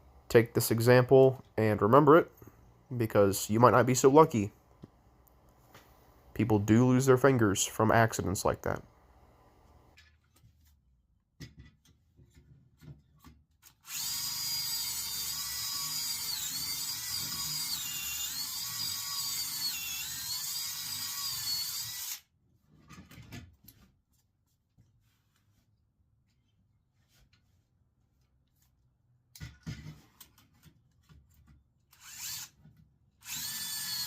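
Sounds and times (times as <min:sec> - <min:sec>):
power drill whining: 0:13.8 - 0:22.2, 0:31.9 - 0:32.6, 0:33.2 - 0:34.0.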